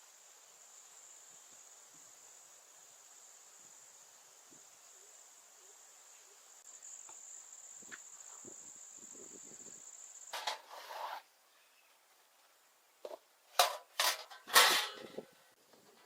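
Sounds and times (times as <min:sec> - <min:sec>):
crickets trilling: 0:00.0 - 0:11.8
sharp knocks and handling noise: 0:13.0 - 0:16.0.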